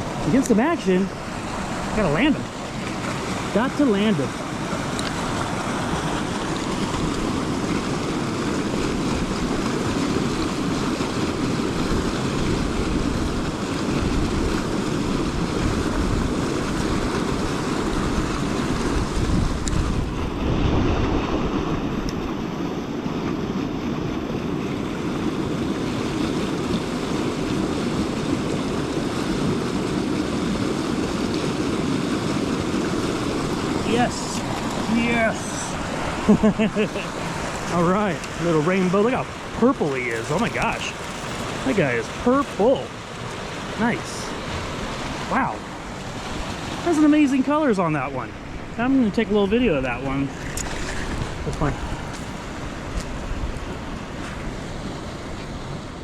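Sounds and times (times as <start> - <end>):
wind on microphone: 0.0 - 47.2, 48.1 - 56.0
flowing river water: 0.0 - 56.0.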